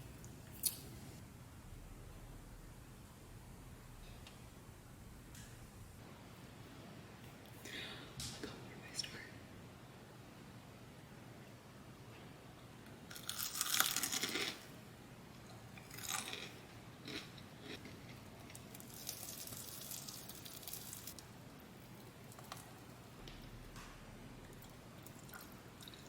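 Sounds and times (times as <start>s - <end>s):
crunching of crisp food: 13.1s - 14.7s, 15.5s - 21.2s
crackly chewing: 15.5s - 21.2s.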